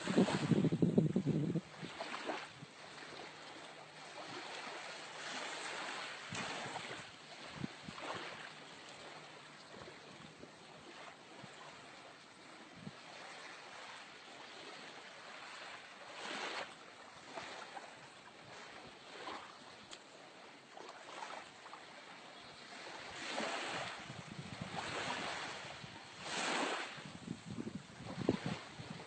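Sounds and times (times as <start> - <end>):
wind buffeting microphone: 0.0 - 2.7, 6.3 - 8.3, 23.2 - 29.0
sea waves washing in: 0.0 - 29.0.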